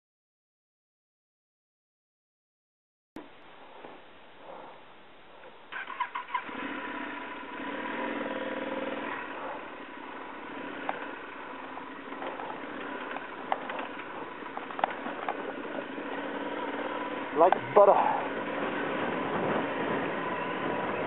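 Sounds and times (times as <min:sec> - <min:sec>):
motorcycle engine at low revs: 0:03.2 - 0:21.0.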